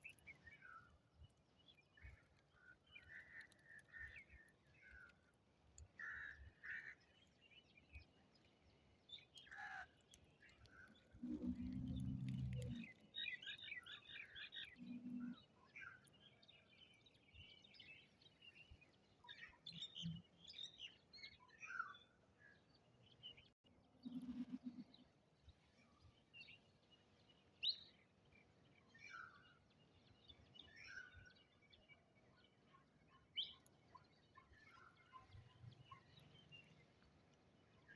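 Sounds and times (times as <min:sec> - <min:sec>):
small birds chirping: 0:00.0 - 0:21.8.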